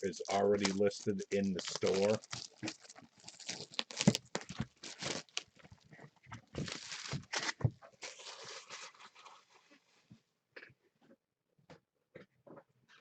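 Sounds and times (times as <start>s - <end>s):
plastic wrap crinkling: 0.0s - 9.8s.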